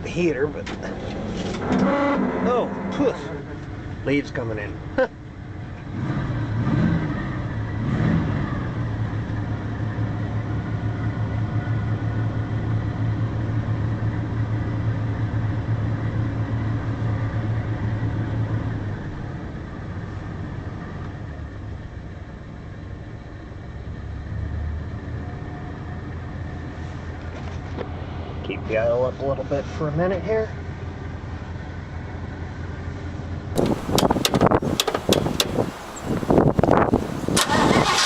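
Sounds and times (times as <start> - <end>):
truck engine idling and revving: 0.0 - 38.0.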